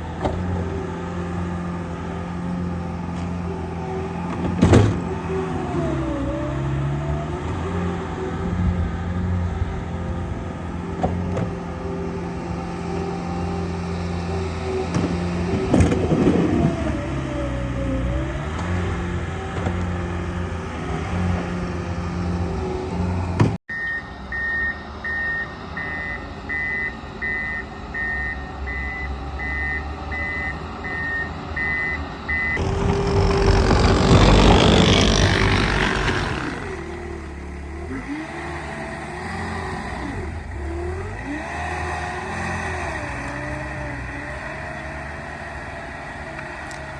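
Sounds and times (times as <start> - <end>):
heavy vehicle engine running: 0.0 - 23.6, 24.2 - 46.9
reversing alarm beeping: 23.7 - 33.1
loud rushing noise: 32.6 - 37.0.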